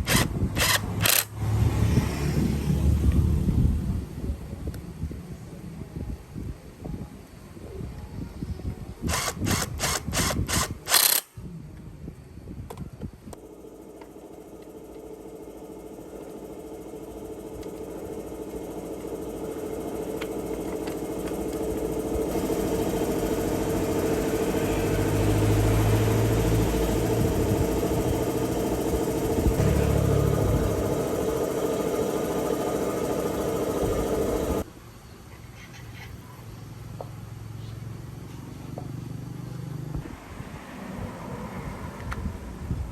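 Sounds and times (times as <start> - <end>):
small motor running: 0.0 - 1.6, 9.1 - 11.3, 13.4 - 34.7.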